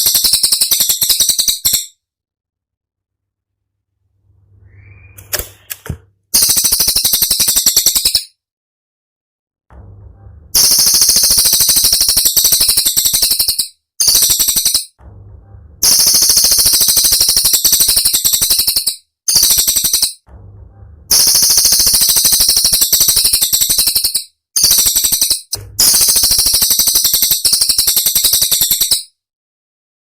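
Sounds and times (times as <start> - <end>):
bird singing rapid trills: 0.0 - 2.0, 10.6 - 15.0, 15.8 - 20.2, 21.1 - 29.1.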